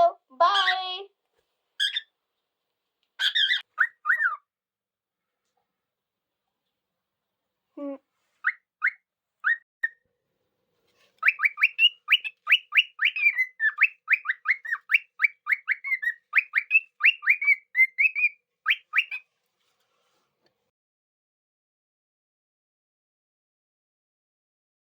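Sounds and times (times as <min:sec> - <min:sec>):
cockatiel chirping and whistling: 0:01.8 - 0:02.1, 0:03.2 - 0:04.4, 0:08.4 - 0:10.0, 0:11.2 - 0:19.2.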